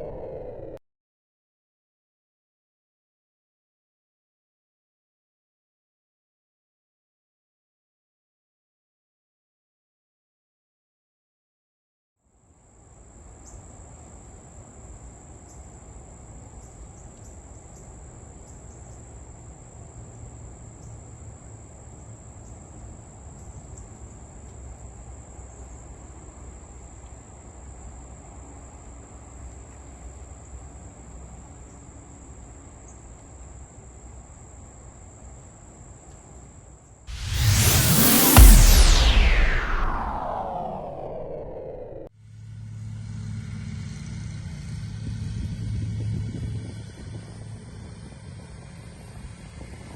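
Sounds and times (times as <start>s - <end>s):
insects trilling: 12.6s - 37.0s
low outdoor rumble: 37.1s - 49.9s.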